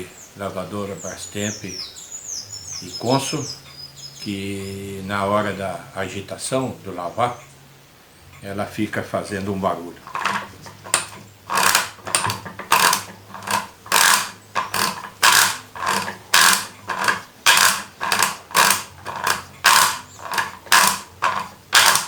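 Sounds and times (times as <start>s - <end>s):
washing machine motor hum: 10.0s - 22.0s
washing machine ratcheting clack: 10.0s - 22.0s.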